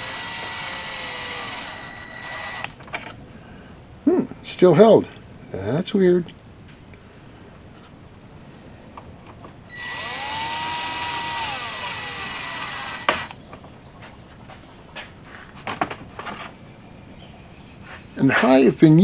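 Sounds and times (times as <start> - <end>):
power tool motor whine: 0.0 - 2.8, 9.7 - 13.4.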